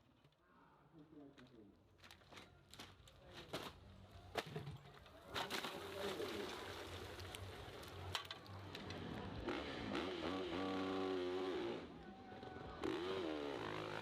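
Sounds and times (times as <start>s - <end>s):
motorcycle engine revving hard: 9.4s - 11.9s, 12.8s - 14.0s.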